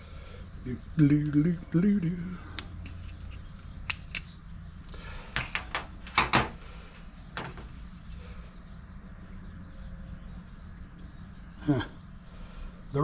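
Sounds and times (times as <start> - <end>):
steady low hum: 0.0 - 13.0
clicks and knocks of parts handled: 2.6 - 6.6, 7.3 - 7.9.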